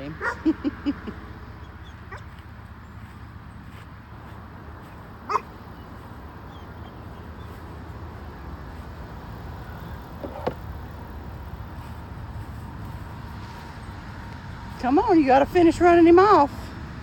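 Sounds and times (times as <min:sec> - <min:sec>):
dog barking: 0:00.2 - 0:00.4, 0:05.3 - 0:05.5.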